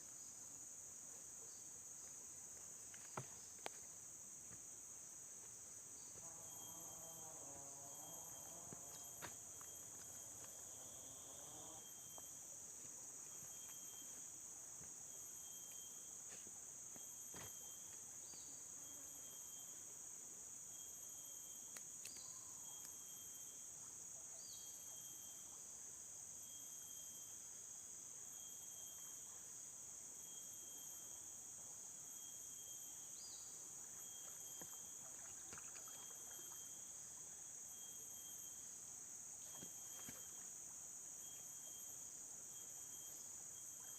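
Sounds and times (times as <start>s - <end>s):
high-pitched insect chorus: 0.0s - 43.9s
faint repeating chirp: 13.2s - 14.4s, 32.1s - 37.0s.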